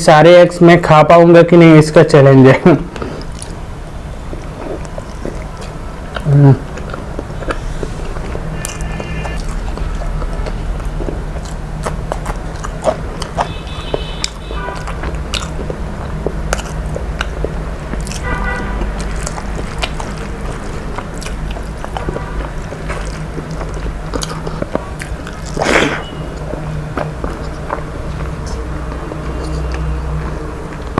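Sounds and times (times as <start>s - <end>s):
steady low hum: 2.0s - 30.9s
person chewing: 2.9s - 30.9s.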